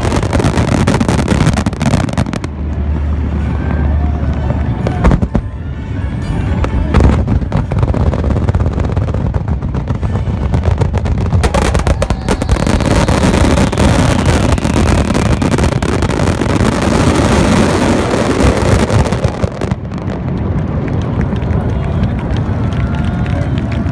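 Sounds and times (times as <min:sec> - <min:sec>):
fireworks bursts rumbling: 0:00.0 - 0:23.9
crackling firework shells: 0:06.9 - 0:21.4.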